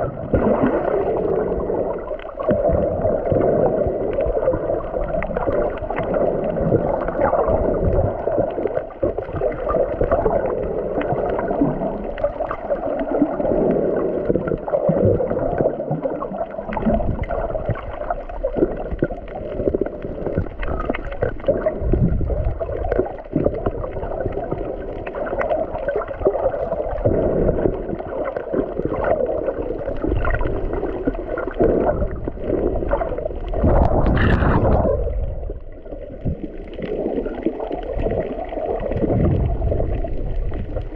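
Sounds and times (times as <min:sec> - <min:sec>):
water sloshing underwater: 0:00.0 - 0:40.9
crackling clicks: 0:16.4 - 0:40.9
low rumble: 0:33.2 - 0:36.6.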